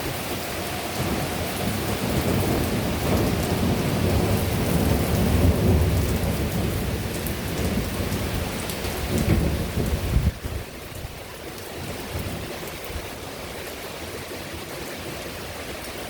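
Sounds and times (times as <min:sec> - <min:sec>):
heavy rain pouring: 0:00.0 - 0:16.0
rolling thunder: 0:00.9 - 0:10.7.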